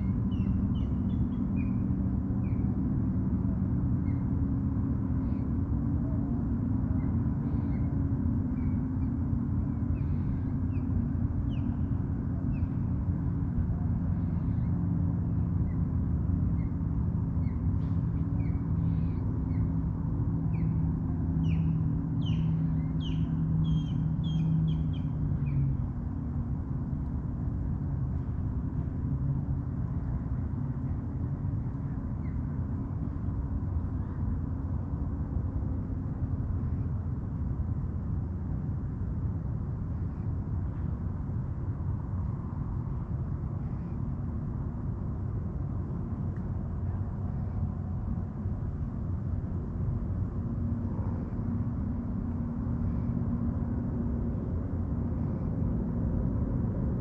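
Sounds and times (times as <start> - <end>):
faint bird chirps: 0.0 - 2.9, 3.9 - 25.9, 31.8 - 33.2
boat engine droning: 0.0 - 57.0
bird calling: 7.0 - 13.0, 17.4 - 25.7.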